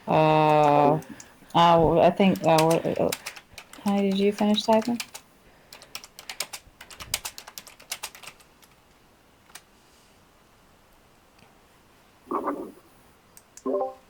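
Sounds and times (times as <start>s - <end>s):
typing on a keyboard: 0.3s - 8.9s.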